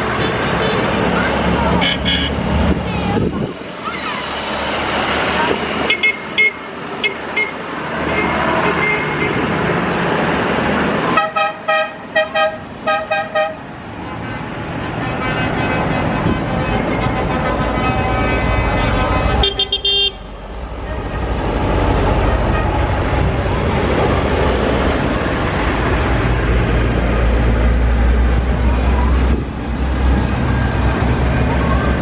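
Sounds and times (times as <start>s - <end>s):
trucks and tractors passing: 0.0s - 32.0s
vehicle horn blasts: 1.8s - 2.4s, 11.2s - 13.6s, 17.1s - 20.3s.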